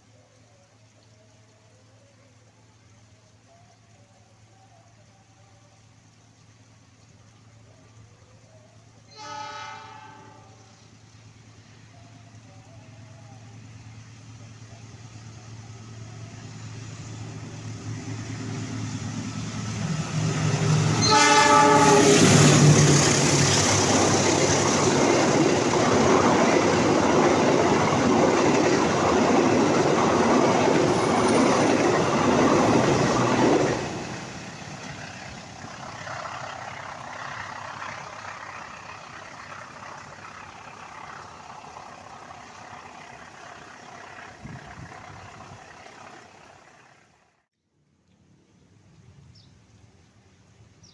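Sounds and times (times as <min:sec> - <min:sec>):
steady hiss: 0:00.0 - 0:44.3
low train engine hum: 0:00.0 - 0:50.9
rush of passing train: 0:07.9 - 0:47.5
train horn blast: 0:09.1 - 0:10.8, 0:20.9 - 0:22.8.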